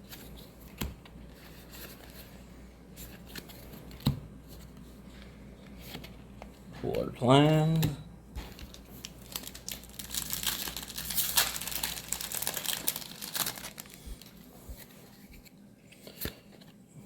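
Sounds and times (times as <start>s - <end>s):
foil wrapper crinkling: 8.5s - 14.6s.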